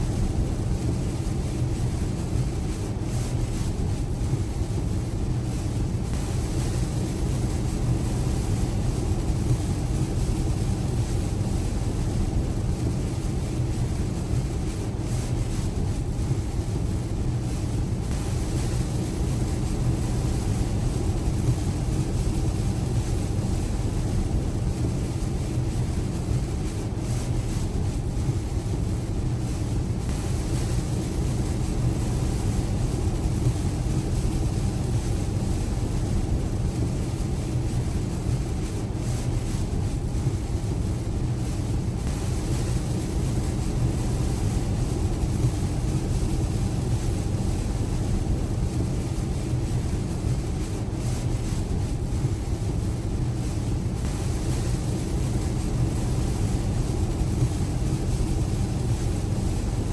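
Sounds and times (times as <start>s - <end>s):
rain on car: 30.2s - 41.6s, 42.2s - 52.3s, 54.2s - 59.9s.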